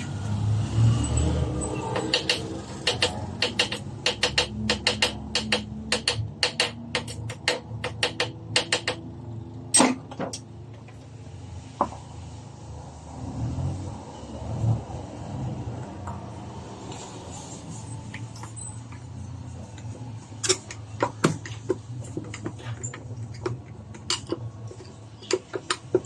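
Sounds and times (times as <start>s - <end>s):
hand tool clicks and taps: 1.9s - 9.0s, 20.4s - 26.0s.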